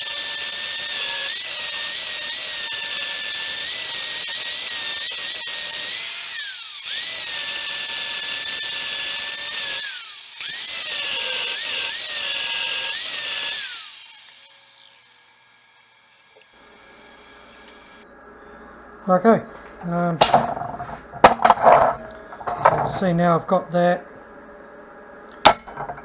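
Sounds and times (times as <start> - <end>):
angle grinder grinding steel: 19.8 - 23.5, 25.4 - 26.0.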